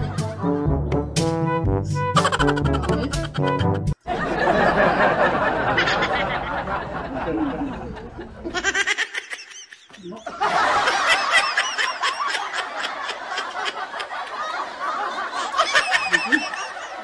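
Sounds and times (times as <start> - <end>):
high-pitched giggling: 2.2 - 4.0, 15.6 - 17.0.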